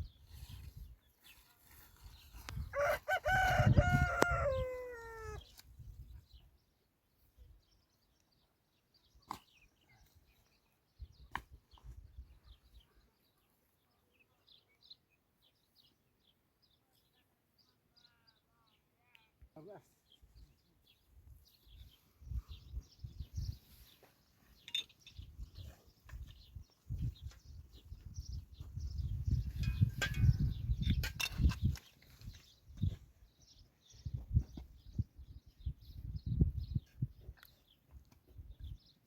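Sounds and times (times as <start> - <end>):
rooster crowing: 2.7 - 5.4.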